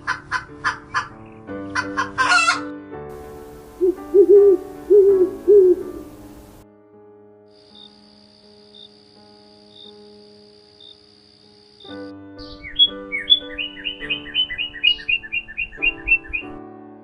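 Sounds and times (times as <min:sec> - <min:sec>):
chicken squawk: 0:00.0 - 0:02.7
background music: 0:00.0 - 0:17.0
low hoots: 0:03.3 - 0:06.6.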